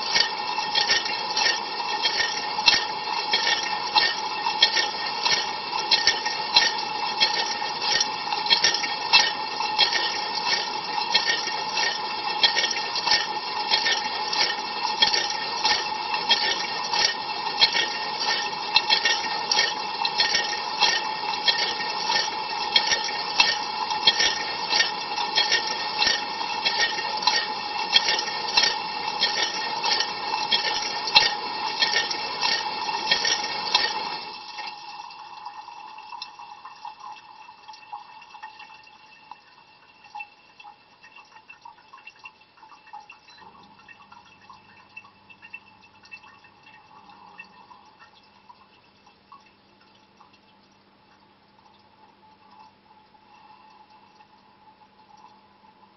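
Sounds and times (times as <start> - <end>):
pump whine: 0.0 - 35.5.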